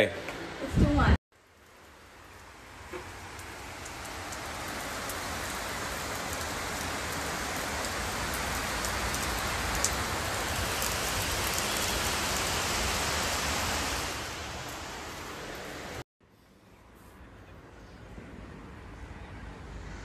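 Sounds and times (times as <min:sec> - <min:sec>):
steady rain falling: 0:01.3 - 0:16.0.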